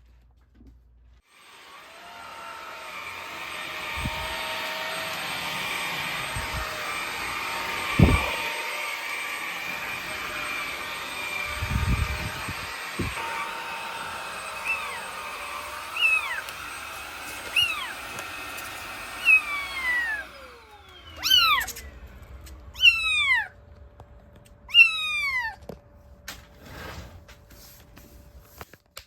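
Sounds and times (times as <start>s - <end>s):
vacuum cleaner motor: 1.3s - 23.7s
cat meowing: 15.9s - 16.5s, 17.5s - 18.0s, 21.2s - 21.8s, 22.7s - 23.6s, 24.7s - 25.6s.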